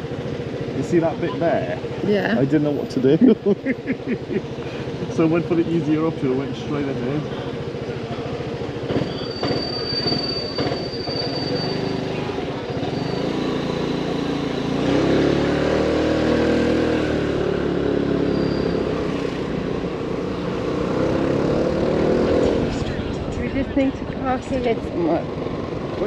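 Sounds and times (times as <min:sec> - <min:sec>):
motorbike engine running: 0:00.0 - 0:18.2
road noise: 0:00.0 - 0:26.0.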